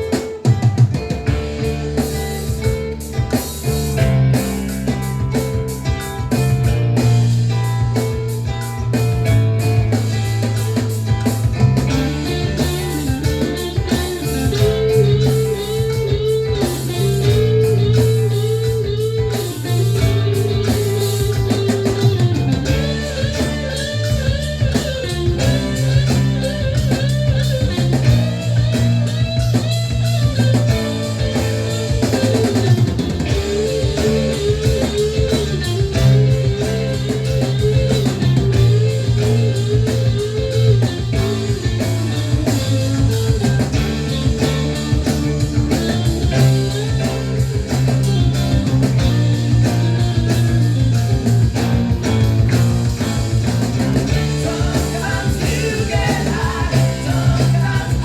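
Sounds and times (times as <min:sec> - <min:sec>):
bass guitar: 0:00.0 - 0:58.0
drum kit: 0:00.0 - 0:58.0
electric guitar lead: 0:00.0 - 0:58.0.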